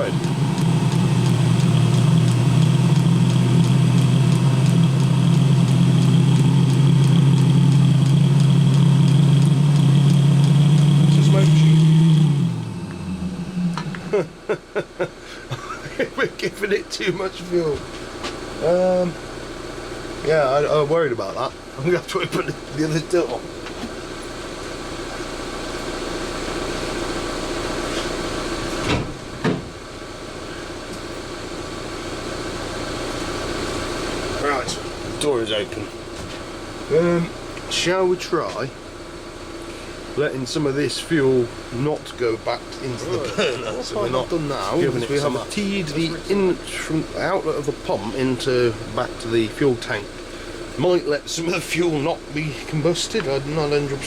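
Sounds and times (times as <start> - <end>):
light regular ticking: 0.0 - 12.4
diesel heater running: 0.0 - 54.0
van engine idling: 0.0 - 54.0
van door clunks: 28.8 - 29.8.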